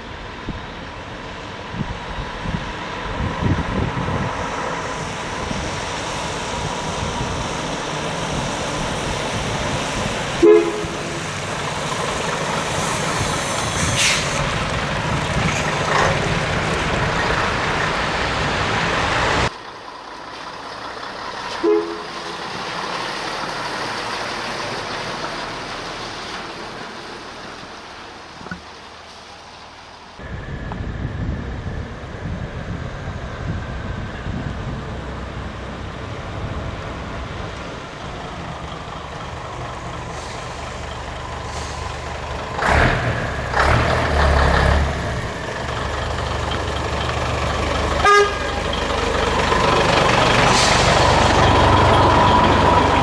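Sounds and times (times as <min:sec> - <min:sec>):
truck engine and road noise: 0:00.0 - 0:53.0
two-tone horn toots: 0:10.4 - 0:11.3, 0:21.6 - 0:22.2, 0:48.0 - 0:48.6.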